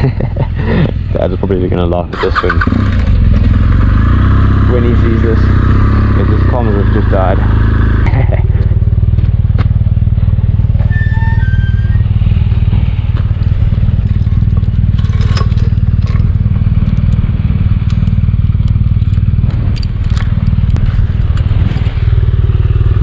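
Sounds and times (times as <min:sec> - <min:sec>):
motorcycle engine running: 0:00.0 - 0:23.0
clicks and clatter: 0:14.0 - 0:22.0.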